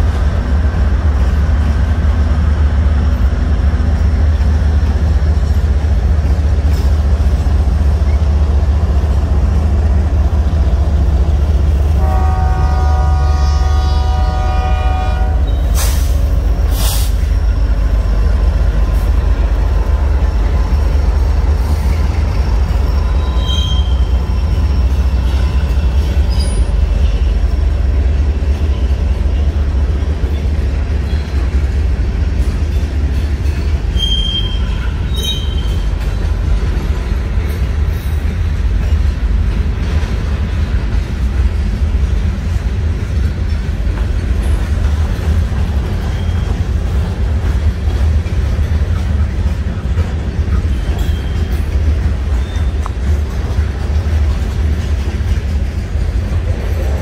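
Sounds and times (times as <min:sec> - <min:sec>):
train wheels rumbling on rail: 0:00.0 - 0:57.0
high wheel squeals: 0:21.9 - 0:27.3, 0:33.9 - 0:35.8, 0:46.0 - 0:46.7, 0:50.5 - 0:51.7, 0:52.3 - 0:52.9.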